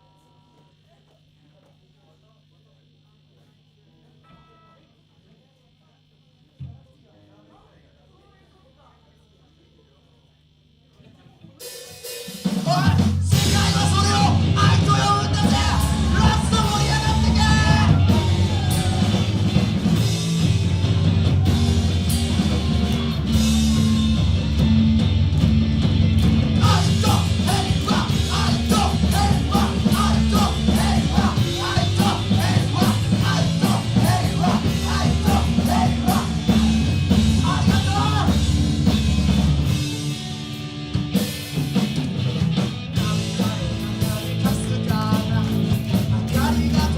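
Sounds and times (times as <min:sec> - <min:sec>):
live rock band playing: 0:11.7 - 0:46.9
shouted or sung vocals: 0:12.6 - 0:19.8, 0:26.6 - 0:38.4.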